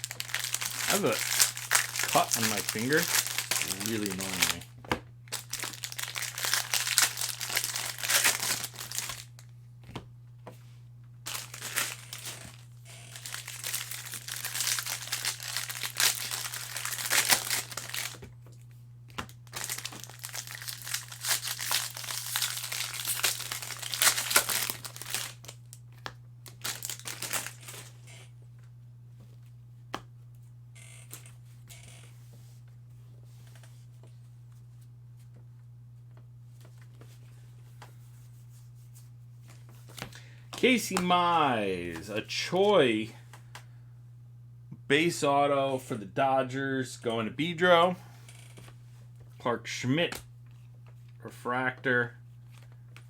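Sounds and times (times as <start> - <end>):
foil wrappers crinkling: 0.0 - 9.5, 11.2 - 28.1
low electrical hum: 0.0 - 53.0.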